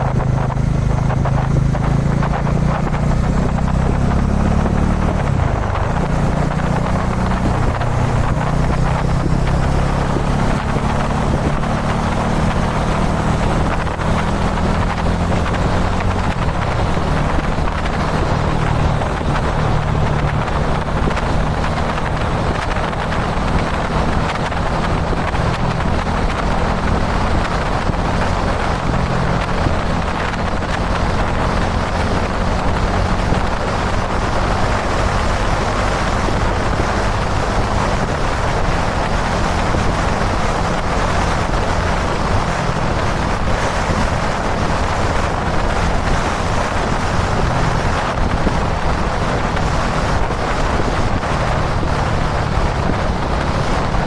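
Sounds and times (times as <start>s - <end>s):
motorcycle engine cruising: 0.0s - 54.0s
wind buffeting microphone: 0.0s - 54.0s.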